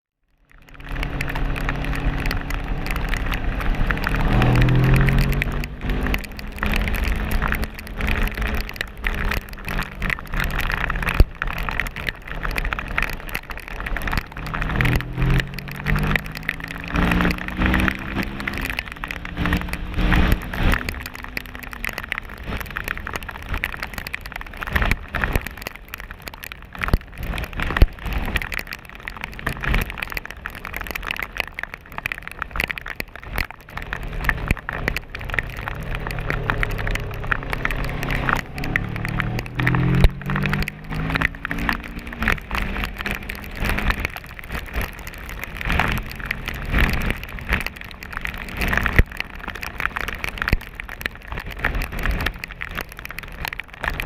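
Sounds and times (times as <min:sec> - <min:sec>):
rain hiss: 0:00.5 - 0:54.0
wind buffeting camera: 0:00.7 - 0:54.0
motorcycle engine accelerating: 0:00.8 - 0:11.7, 0:13.9 - 0:21.8, 0:33.8 - 0:44.3.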